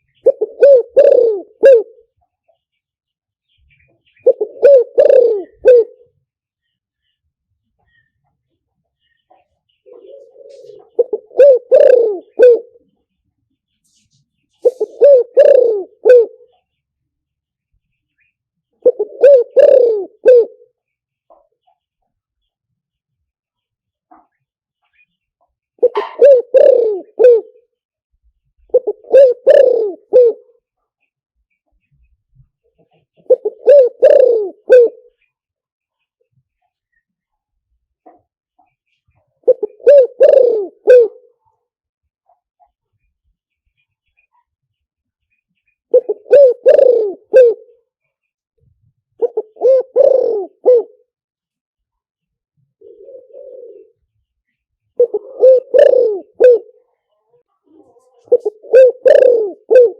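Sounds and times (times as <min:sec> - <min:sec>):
dove cooing: 0:00.0 - 0:02.2, 0:04.1 - 0:06.2, 0:09.8 - 0:13.0, 0:14.6 - 0:16.6, 0:18.8 - 0:20.7, 0:25.8 - 0:27.6, 0:28.7 - 0:30.6, 0:32.8 - 0:35.2, 0:39.4 - 0:41.4, 0:45.9 - 0:47.8, 0:49.2 - 0:51.1, 0:52.7 - 0:59.9.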